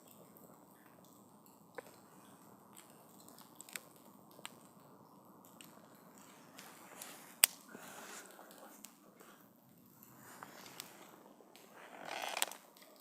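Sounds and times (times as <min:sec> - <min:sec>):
campfire crackling: 0:00.0 - 0:13.0
burning wood popping: 0:02.7 - 0:04.8, 0:05.4 - 0:13.0.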